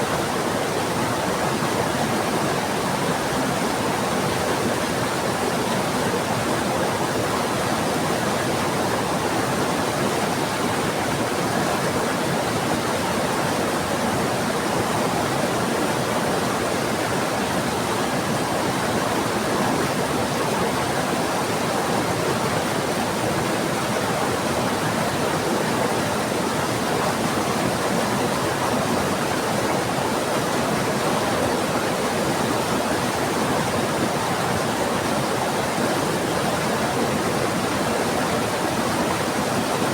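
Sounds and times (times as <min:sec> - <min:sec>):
fast-flowing river: 0:00.0 - 0:39.9.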